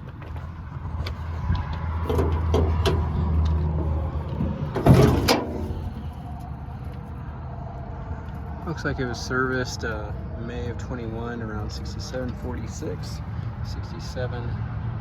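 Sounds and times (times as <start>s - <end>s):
low steady rumble: 0.0s - 13.8s
loud clunk: 2.0s - 3.1s, 4.7s - 6.1s.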